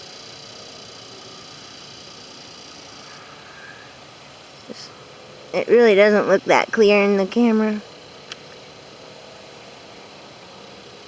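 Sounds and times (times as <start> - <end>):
high-pitched hiss: 0.0 - 11.0
faint steady high tones: 2.6 - 7.8.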